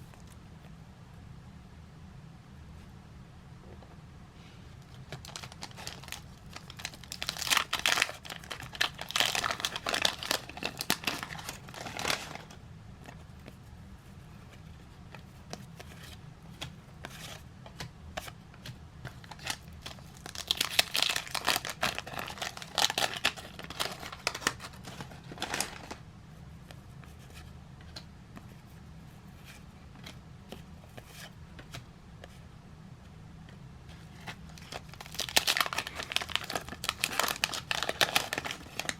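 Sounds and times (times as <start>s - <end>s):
paper wrappers tearing and crinkling: 5.2s - 12.5s, 19.2s - 26.0s, 34.2s - 38.9s.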